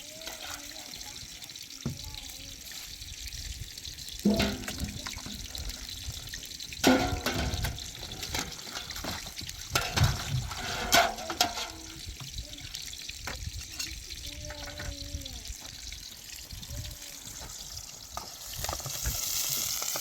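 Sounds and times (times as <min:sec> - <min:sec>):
water running: 0:00.0 - 0:20.0
splashes or knocks: 0:04.2 - 0:05.7, 0:06.8 - 0:11.9.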